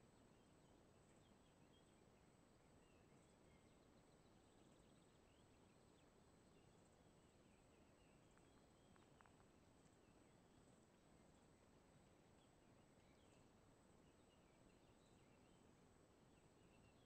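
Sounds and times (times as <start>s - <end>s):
faint background hiss: 0.0s - 17.0s
faint bird chirps: 0.0s - 17.0s.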